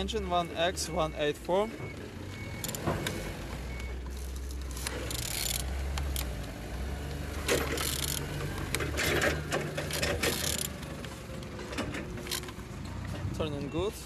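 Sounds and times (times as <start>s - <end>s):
wrench ratcheting: 4.8s - 6.3s, 7.5s - 8.4s, 9.8s - 10.8s.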